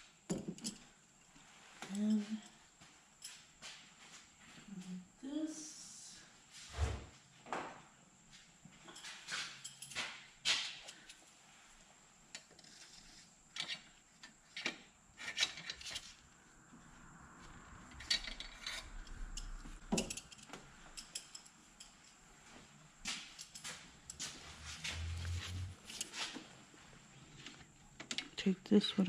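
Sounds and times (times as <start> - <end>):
tools clicking and tapping on metal: 0.3 - 0.8, 8.8 - 11.2, 18.2 - 22.2.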